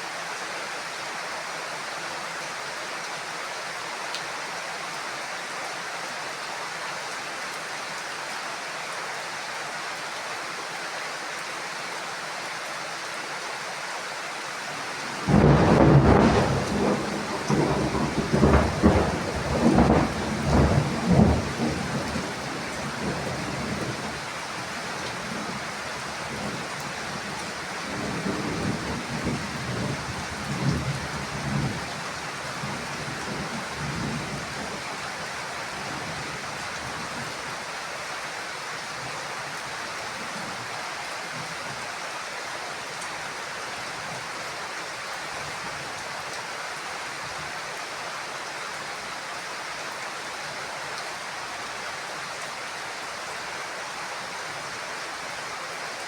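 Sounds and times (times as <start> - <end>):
heavy rain hissing: 13.7 - 41.2
thunder clap and rumble: 15.3 - 23.9.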